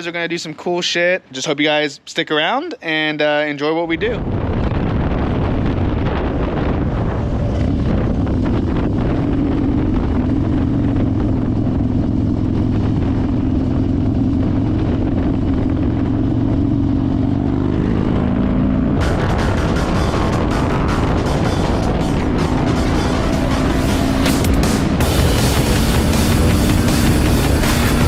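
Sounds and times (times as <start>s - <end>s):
wind buffeting microphone: 3.8s - 28.0s
motorcycle engine running: 4.3s - 28.0s
music: 19.0s - 28.0s.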